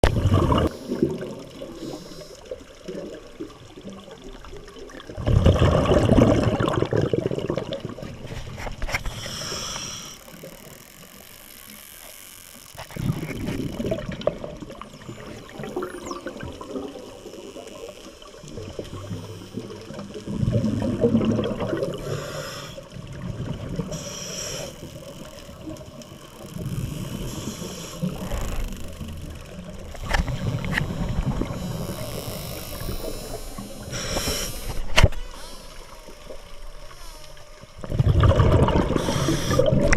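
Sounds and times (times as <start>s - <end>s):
rush of exhaled bubbles: 0.0s - 1.8s, 4.7s - 8.4s, 12.9s - 17.1s, 18.5s - 22.2s, 37.8s - 39.9s
regulator hiss: 1.7s - 2.5s, 9.1s - 12.7s, 22.0s - 22.9s, 23.8s - 25.3s, 27.0s - 37.7s, 38.9s - 39.8s.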